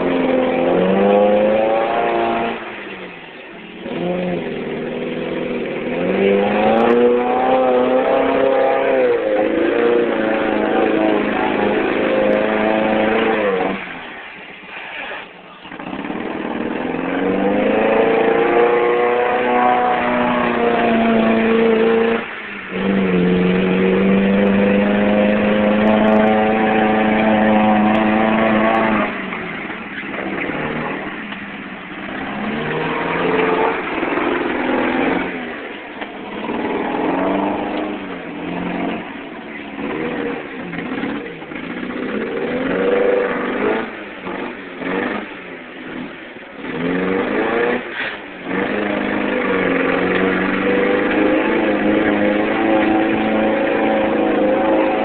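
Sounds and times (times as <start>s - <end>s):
truck engine revving: 0.0s - 55.0s.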